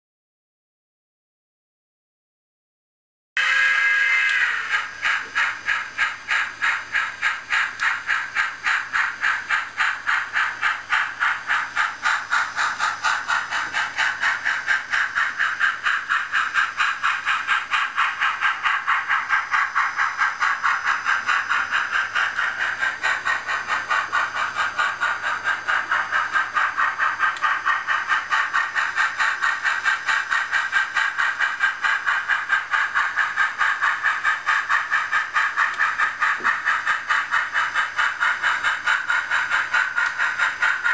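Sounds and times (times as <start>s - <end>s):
train running past rhythmically: 3.4s - 40.9s.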